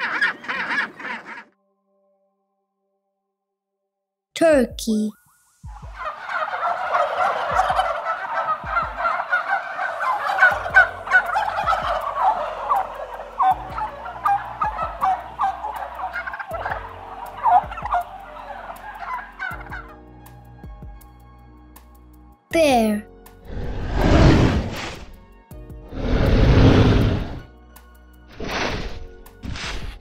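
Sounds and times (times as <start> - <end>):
turkey gobbling: 0.0 - 1.6, 5.8 - 20.0.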